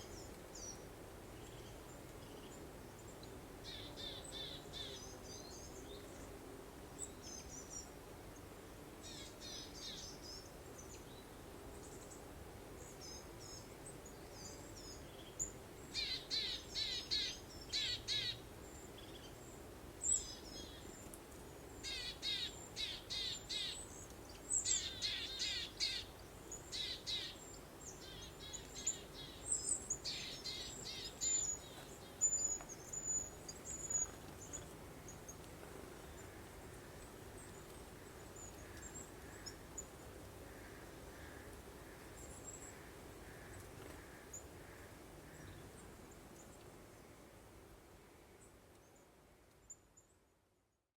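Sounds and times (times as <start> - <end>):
songbirds chirping: 9.3 - 46.7
soft breeze: 22.5 - 50.6.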